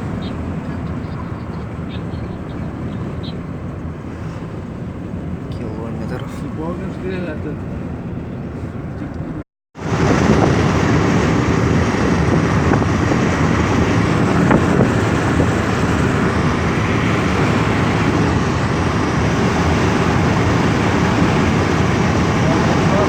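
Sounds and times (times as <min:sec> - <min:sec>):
car road noise: 0:00.0 - 0:23.0
wind buffeting microphone: 0:00.0 - 0:23.0.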